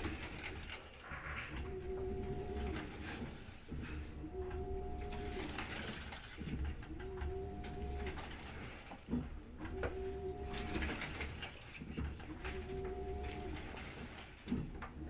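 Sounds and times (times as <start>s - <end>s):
washing machine drum motor humming: 0.0s - 15.0s.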